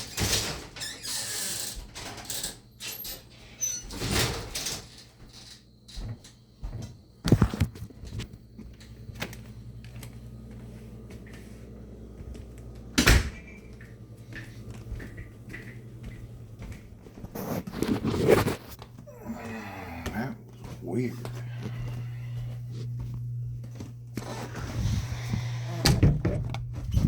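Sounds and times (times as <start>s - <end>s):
low steady hum: 7.8s - 17.3s, 18.6s - 27.0s
bumps and scrapes: 17.0s - 18.9s, 24.2s - 27.0s.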